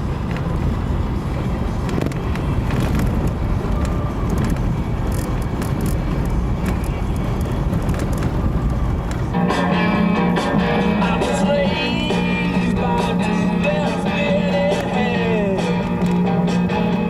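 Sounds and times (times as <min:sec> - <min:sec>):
car engine and road rumble: 0:00.0 - 0:17.0
small clicks and rattles: 0:01.8 - 0:09.2.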